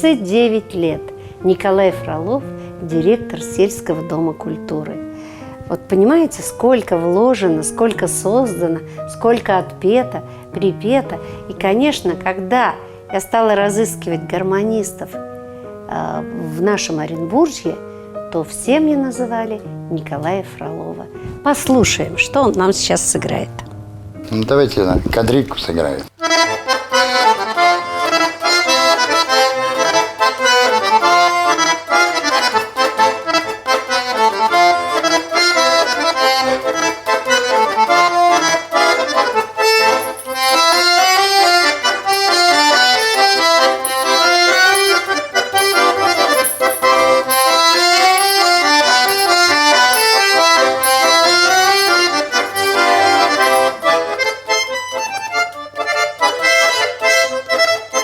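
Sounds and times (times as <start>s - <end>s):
button accordion playing: 26.2s - 58.0s.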